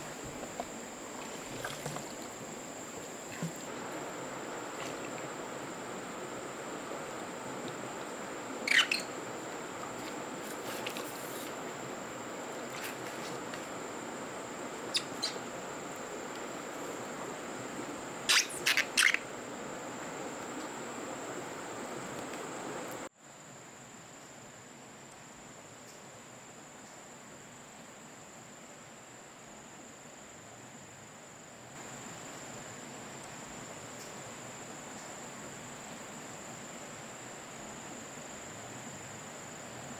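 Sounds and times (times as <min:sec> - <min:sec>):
high insect drone: 0:00.0 - 0:24.4
sharp bird calls: 0:08.6 - 0:09.2, 0:14.9 - 0:15.5, 0:18.3 - 0:19.2.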